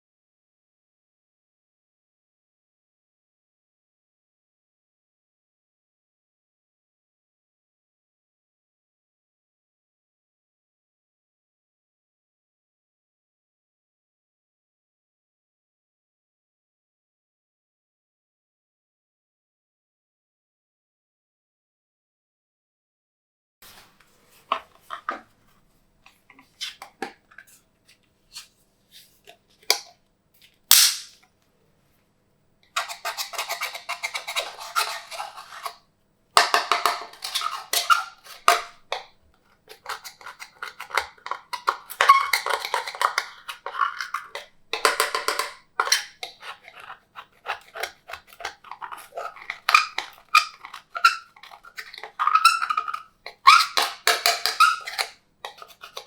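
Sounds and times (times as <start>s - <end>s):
slime squishing and popping: 30.7s - 31.1s.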